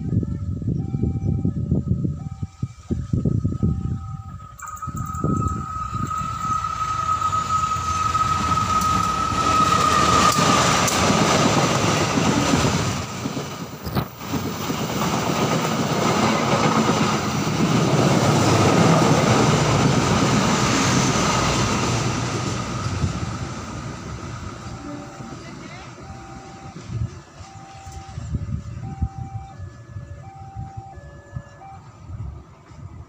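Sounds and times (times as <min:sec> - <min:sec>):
high whine: 0:00.0 - 0:11.2
train coaches rumbling and clattering: 0:01.3 - 0:30.0, 0:30.6 - 0:33.0.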